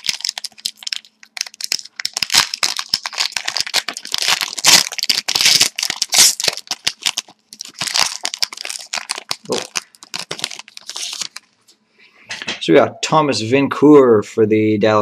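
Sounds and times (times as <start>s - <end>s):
wrappers tearing and crinkling: 0.0s - 11.5s.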